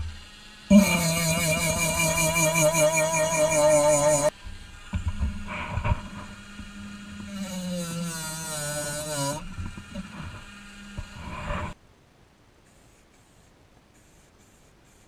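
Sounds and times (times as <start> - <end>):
rotary tool polishing whine: 0.0 - 11.8.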